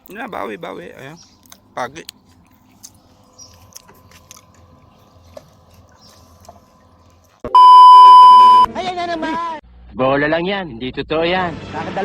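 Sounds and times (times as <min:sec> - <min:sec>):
steady electronic beep tone: 0:07.5 - 0:08.7.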